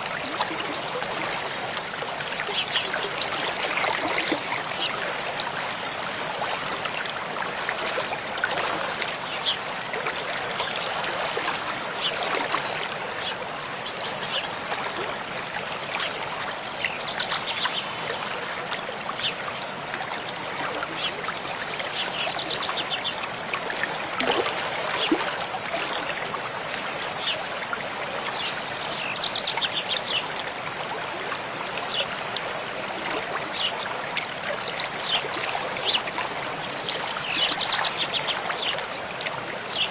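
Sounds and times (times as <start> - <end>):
stream splashing over rocks: 0.0 - 39.9
songbird singing: 16.1 - 18.1, 20.7 - 23.4, 35.0 - 38.8.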